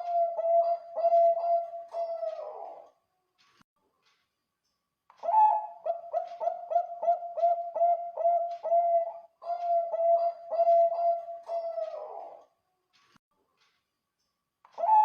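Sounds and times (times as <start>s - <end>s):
dove cooing: 0.0s - 2.9s, 5.2s - 12.4s, 14.8s - 15.0s.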